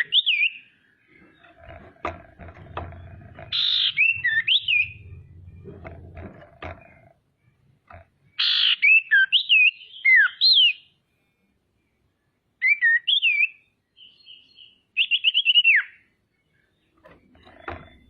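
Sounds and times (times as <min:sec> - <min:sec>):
bird singing whistled notes: 0:00.0 - 0:00.7, 0:03.5 - 0:05.7, 0:08.3 - 0:11.0, 0:11.8 - 0:17.1.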